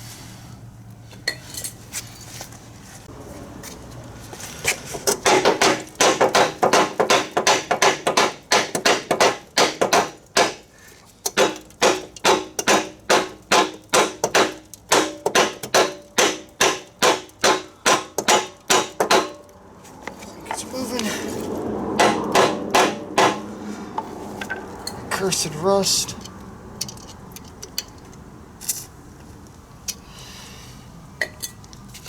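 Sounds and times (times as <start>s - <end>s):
hammer striking metal: 5.1s - 10.6s, 11.3s - 19.4s, 22.0s - 23.5s.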